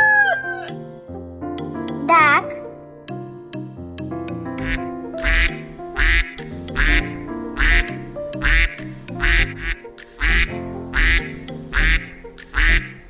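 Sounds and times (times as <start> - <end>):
background music: 0.0 - 13.0
duck quacking: 4.6 - 13.0.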